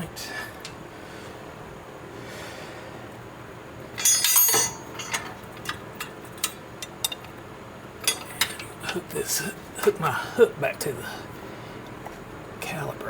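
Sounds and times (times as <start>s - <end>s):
metallic rattle: 4.0s - 7.2s
metal tools clinking: 4.0s - 7.3s, 8.0s - 9.0s.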